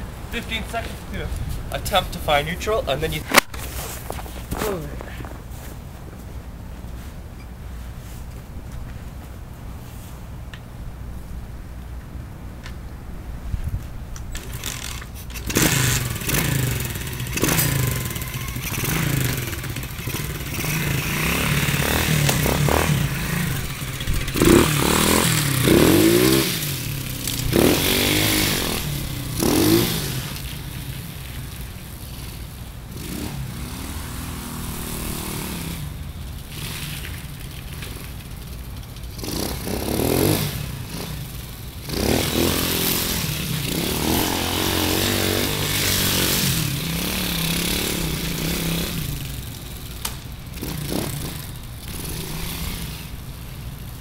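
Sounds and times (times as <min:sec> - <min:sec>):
pit bike engine revving: 0:14.3 - 0:54.0.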